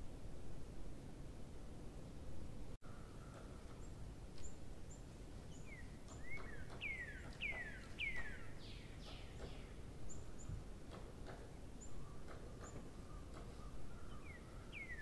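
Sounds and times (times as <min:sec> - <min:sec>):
low background noise: 0:00.0 - 0:15.0
very high bird chirps: 0:02.8 - 0:10.6, 0:11.8 - 0:15.0.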